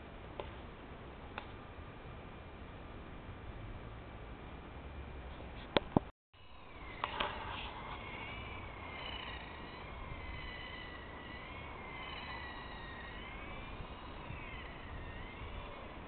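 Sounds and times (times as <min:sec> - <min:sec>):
electric motor whining: 0:06.4 - 0:16.0.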